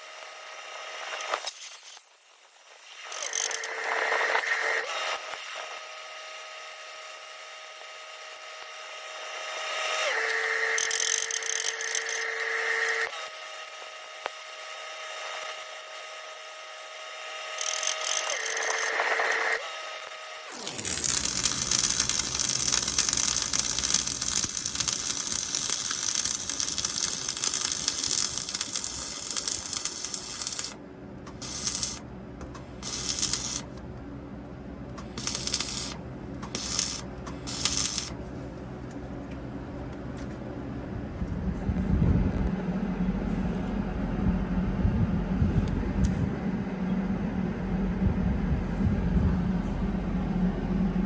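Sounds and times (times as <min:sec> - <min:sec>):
short arc bursts: 0:00.0 - 0:33.8, 0:35.0 - 0:38.2
arc welding hiss: 0:12.9 - 0:32.0, 0:32.7 - 0:33.7, 0:35.0 - 0:38.1
low engine-like rumble: 0:30.8 - 0:51.0.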